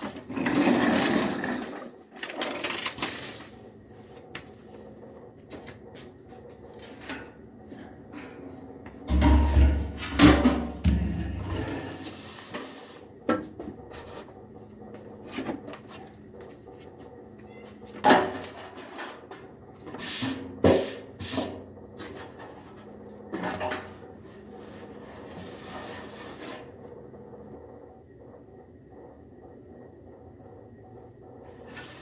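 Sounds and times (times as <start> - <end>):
metal parts knocking and clunking: 9.1 - 12.1
scrape of car parts: 10.8 - 13.1, 24.6 - 26.8.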